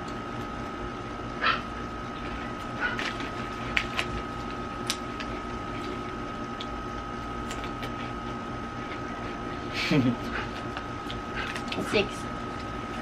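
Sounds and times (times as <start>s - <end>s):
background hum: 0.0s - 13.0s
crunching crisps being eaten: 2.1s - 8.3s, 10.4s - 11.9s.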